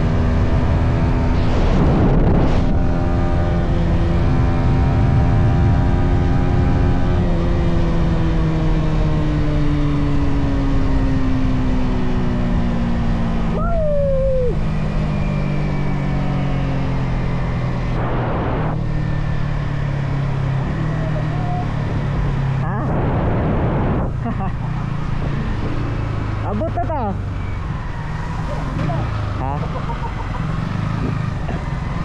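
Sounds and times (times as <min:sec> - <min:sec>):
road and wind noise: 0:00.0 - 0:32.0
motorcycle engine running: 0:03.5 - 0:22.9, 0:24.1 - 0:32.0
high squeal sliding downward: 0:13.5 - 0:21.7, 0:27.2 - 0:32.0.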